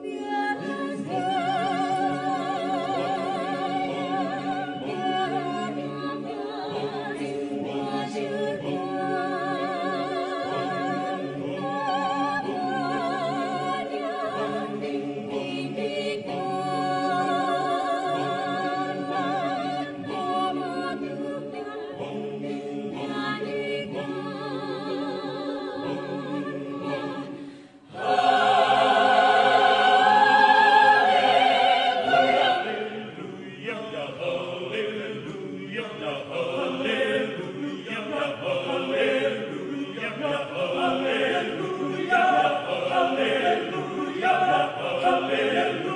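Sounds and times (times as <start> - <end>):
mixed choir singing: 0.0 - 45.9.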